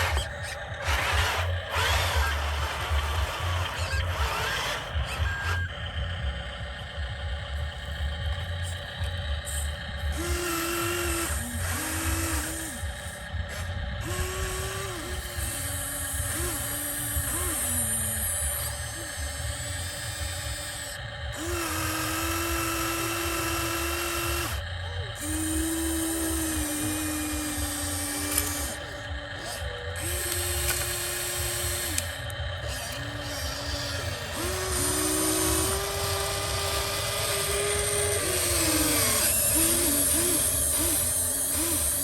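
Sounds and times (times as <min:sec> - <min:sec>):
low rumble: 0:00.0 - 0:15.7
small electric motors whining: 0:00.0 - 0:42.0.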